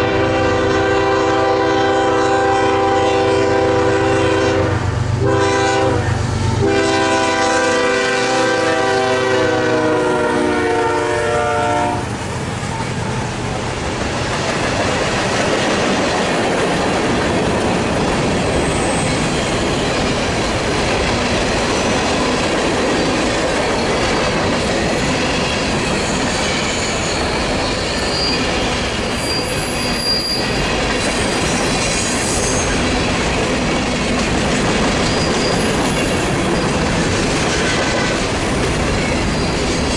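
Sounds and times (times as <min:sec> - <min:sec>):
train horn: 0:00.0 - 0:12.2, 0:37.6 - 0:38.3
train wheels rumbling on rail: 0:00.0 - 0:39.9
high wheel squeals: 0:18.5 - 0:20.0, 0:22.9 - 0:32.8, 0:35.0 - 0:36.9, 0:39.0 - 0:39.9.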